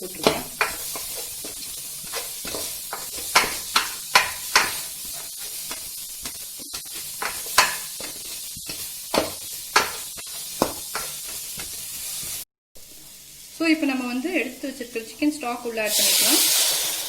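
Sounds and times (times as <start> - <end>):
vegetables sizzling in a pan: 0.0 - 17.0
utensil scraping a pan: 0.1 - 12.4.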